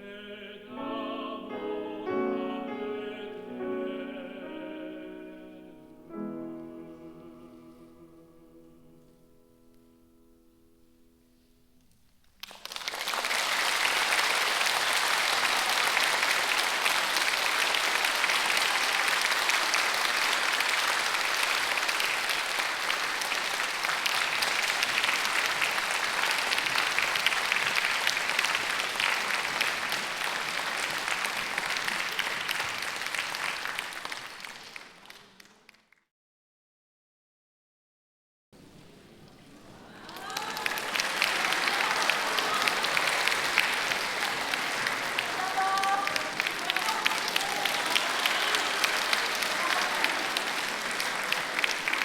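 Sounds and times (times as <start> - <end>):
audience applause: 12.4 - 35.9, 38.6 - 52.0.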